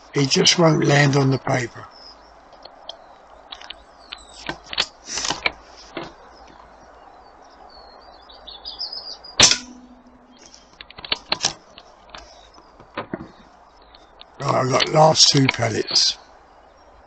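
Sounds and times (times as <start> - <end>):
bird chirping: 0.0 - 17.0
air rifle shot: 9.4 - 10.1.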